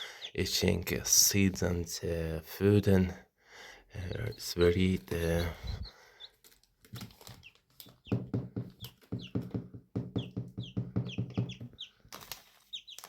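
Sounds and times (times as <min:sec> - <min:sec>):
hen clucking: 0:04.0 - 0:06.3
chicks peeping: 0:04.0 - 0:13.0.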